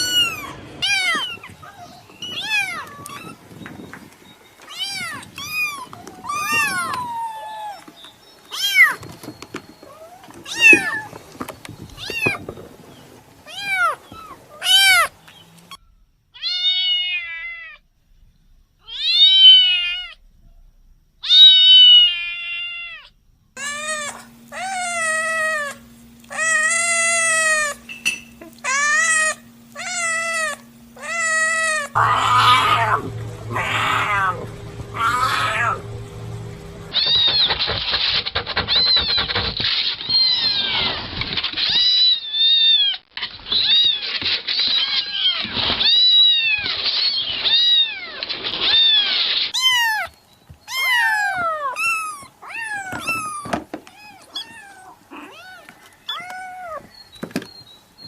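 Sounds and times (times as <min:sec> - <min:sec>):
cats meowing: 0:00.0 - 0:15.8, 0:16.4 - 0:17.8, 0:18.8 - 0:20.2, 0:21.2 - 0:37.6, 0:38.7 - 0:57.6.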